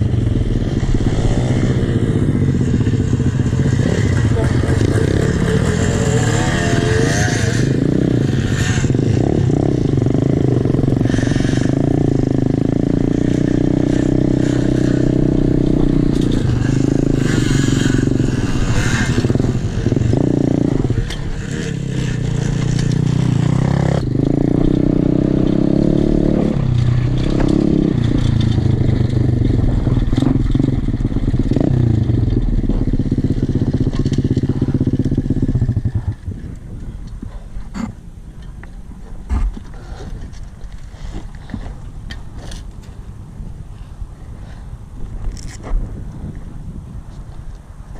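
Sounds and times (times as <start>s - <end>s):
dirt bike engine revving: 0.0s - 36.4s
bike scraping and rattling: 0.0s - 47.9s.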